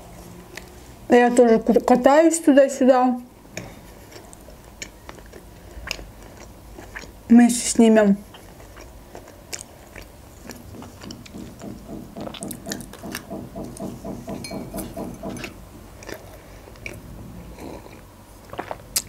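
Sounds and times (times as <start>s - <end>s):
person chewing doughnut: 3.5s - 7.3s, 8.2s - 19.0s
wet mouth clicks: 17.6s - 19.0s.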